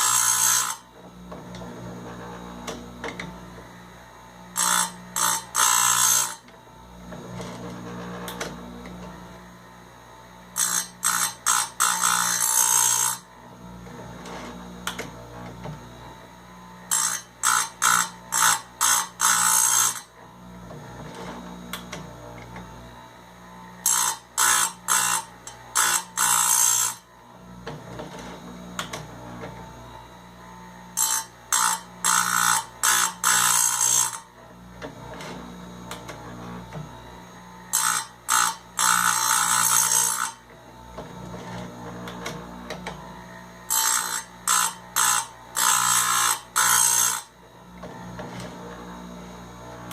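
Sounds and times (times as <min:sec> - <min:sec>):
grinder motor humming: 0:00.0 - 0:49.9
grinding wheel on chain: 0:10.6 - 0:13.2, 0:23.9 - 0:27.0, 0:37.7 - 0:40.4.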